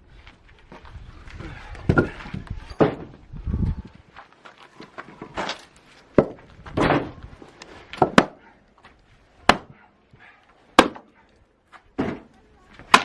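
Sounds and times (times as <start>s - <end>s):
wood knocks and clatter: 1.9s - 3.2s, 4.9s - 7.2s
axe striking wood: 8.0s - 8.4s, 9.4s - 9.8s, 10.8s - 11.1s.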